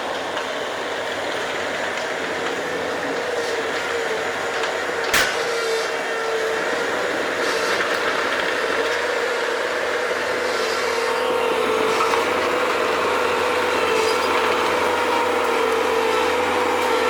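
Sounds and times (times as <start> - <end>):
skid-steer loader whining: 0.0 - 17.0
sharp clank: 5.1 - 5.7.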